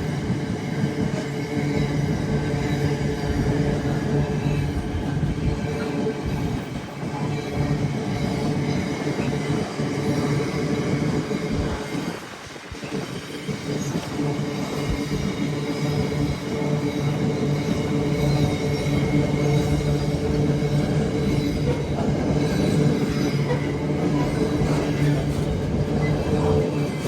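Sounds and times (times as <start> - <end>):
diesel train engine running: 13.4 - 27.0.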